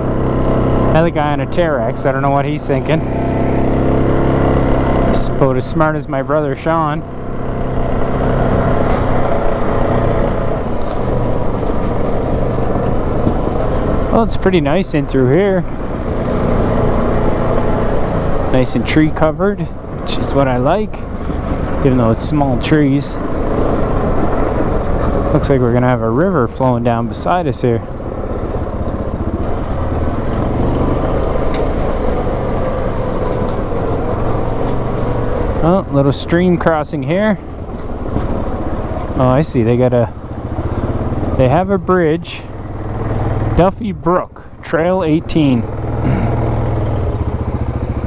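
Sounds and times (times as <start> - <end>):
atv engine running: 0.0 - 48.0
tyre and trail noise: 0.0 - 48.0.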